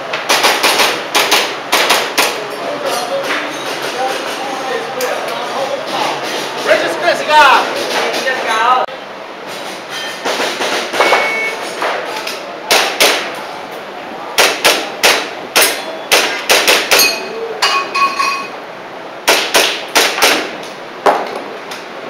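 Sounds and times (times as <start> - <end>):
airsoft pistol shots: 0.3 - 2.4, 12.7 - 13.3, 14.4 - 17.2, 19.2 - 20.6.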